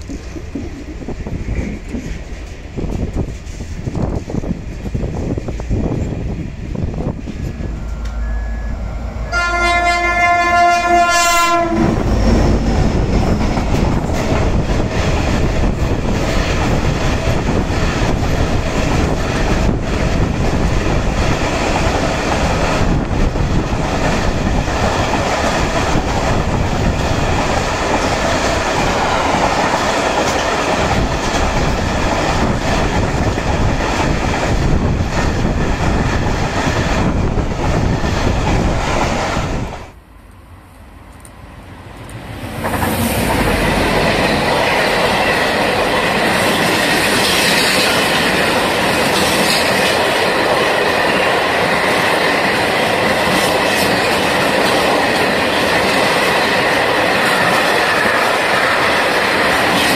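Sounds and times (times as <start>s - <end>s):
freight train rumbling past: 0.0s - 59.9s
train horn blast: 7.7s - 12.6s.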